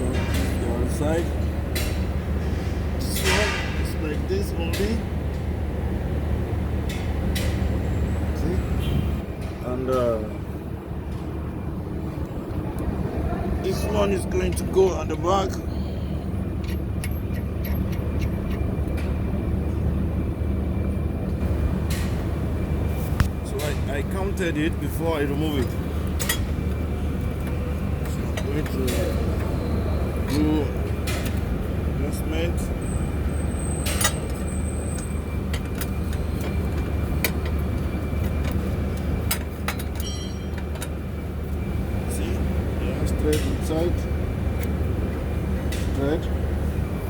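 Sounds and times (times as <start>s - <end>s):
engine rumbling: 0.0s - 47.0s
steady low hum: 0.0s - 47.0s
ringing metal clink: 40.0s - 40.6s.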